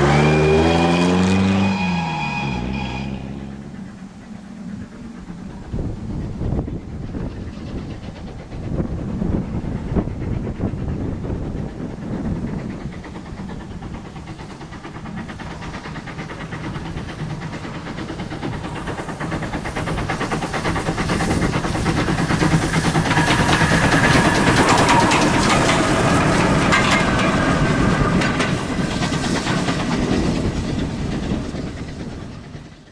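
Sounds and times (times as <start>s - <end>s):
steam train passing: 0.0s - 32.9s
wheels clattering over rail joints: 11.2s - 32.6s.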